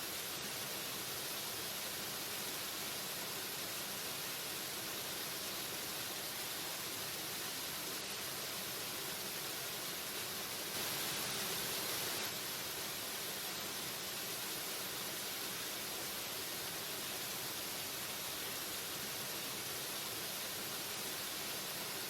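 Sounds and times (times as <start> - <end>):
waterfall rushing: 5.4 - 22.0.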